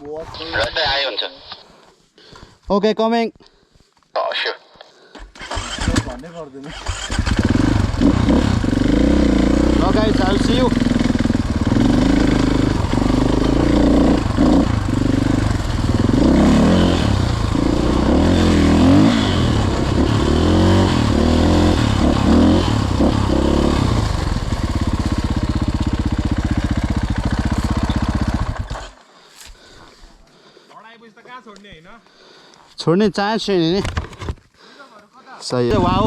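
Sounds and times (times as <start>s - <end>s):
dirt bike engine revving: 5.4s - 29.0s, 35.7s - 36.0s.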